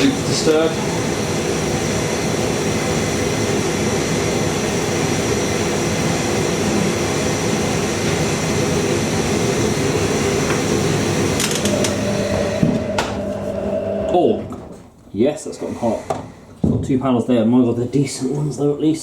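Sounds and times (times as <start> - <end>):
high whine: 0.0 - 14.8
tumble dryer humming: 0.0 - 18.7.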